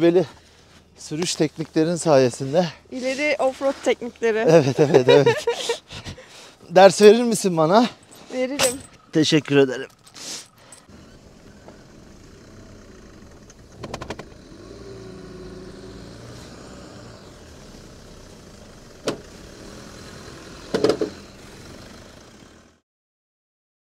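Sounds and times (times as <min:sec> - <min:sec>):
vehicle engine running: 0:07.3 - 0:22.8.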